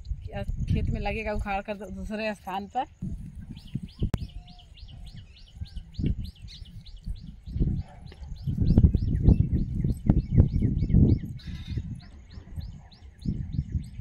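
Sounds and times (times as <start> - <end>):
bird chirping: 3.4 - 14.0.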